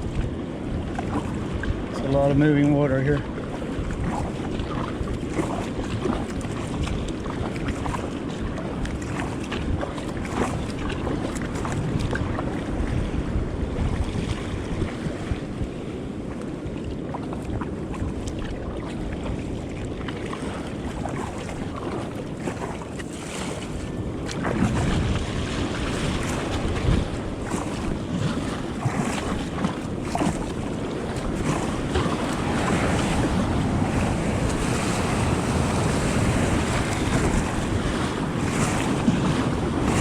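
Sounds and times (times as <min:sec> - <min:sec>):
surf and churning water: 0:00.0 - 0:40.0
wind buffeting microphone: 0:00.0 - 0:40.0.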